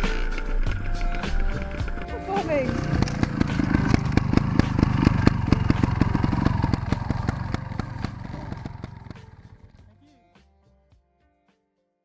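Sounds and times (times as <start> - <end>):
motorcycle engine at low revs: 0.2 - 9.8.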